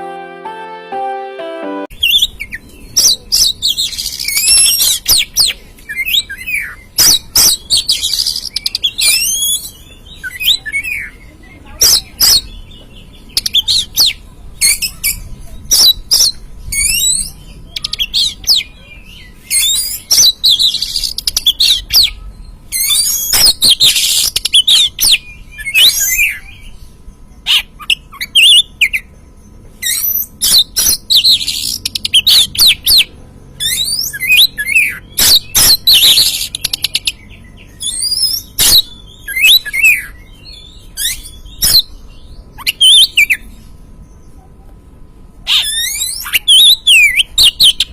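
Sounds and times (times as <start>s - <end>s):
bird singing whistled phrases: 13.3s - 26.7s, 29.8s - 41.9s, 45.5s - 47.9s.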